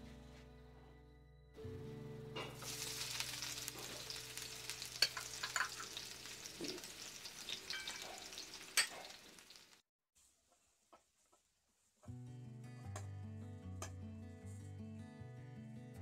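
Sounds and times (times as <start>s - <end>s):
onions sizzling in hot oil: 2.6s - 9.8s.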